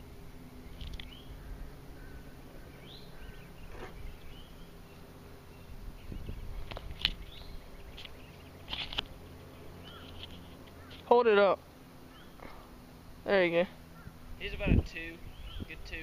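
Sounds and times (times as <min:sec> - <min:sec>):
low background hum: 0:00.0 - 0:16.0
bird chirps: 0:00.5 - 0:11.1, 0:12.0 - 0:12.6, 0:15.2 - 0:15.9.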